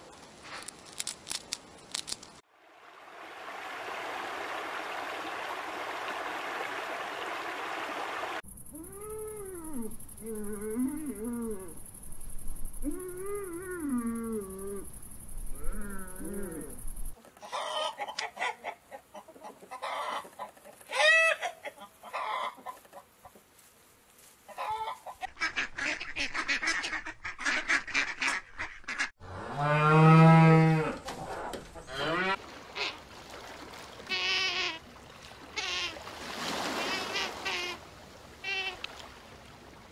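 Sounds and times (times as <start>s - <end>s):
hens clucking: 17.2s - 23.4s, 24.5s - 29.0s
cow mooing: 29.4s - 31.0s.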